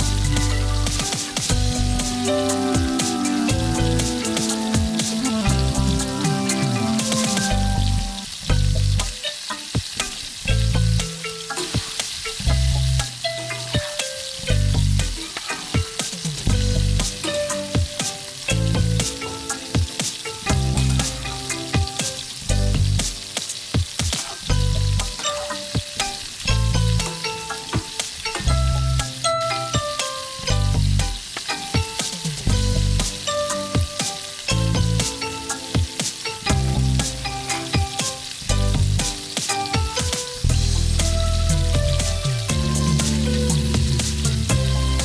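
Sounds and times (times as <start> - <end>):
background music with bass beat: 0.0 - 45.0
curry sizzling in a pan: 0.0 - 45.0.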